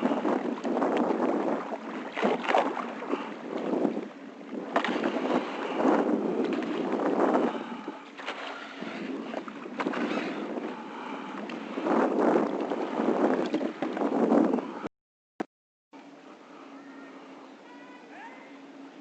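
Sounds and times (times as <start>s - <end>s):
water splashing around kayak: 0.0s - 14.9s.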